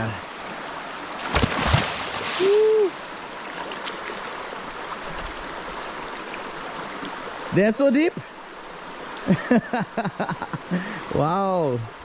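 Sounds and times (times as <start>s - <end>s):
stream rushing: 0.0s - 12.0s
splash into water: 1.2s - 2.7s
person crying out: 2.4s - 3.0s.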